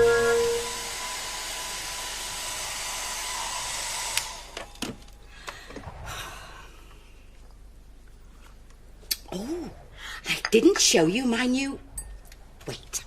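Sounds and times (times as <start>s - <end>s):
hair dryer blowing: 0.0s - 4.8s.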